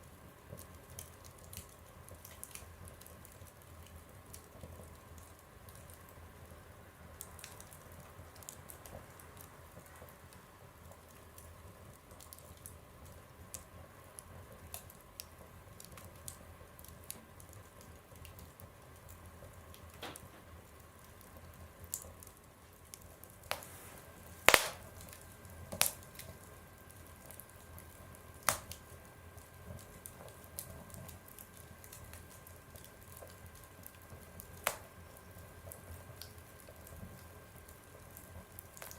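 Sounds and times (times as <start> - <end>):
wood fire crackling: 0.0 - 38.9
sharp fire pops: 23.4 - 26.3, 28.4 - 28.9, 34.4 - 35.0.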